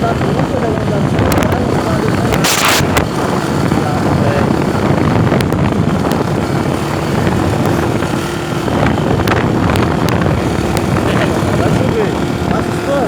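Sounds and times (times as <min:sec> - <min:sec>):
vehicle engine running: 0:00.0 - 0:13.0
wind on microphone: 0:00.0 - 0:13.0
sharp ticks: 0:04.5 - 0:11.1.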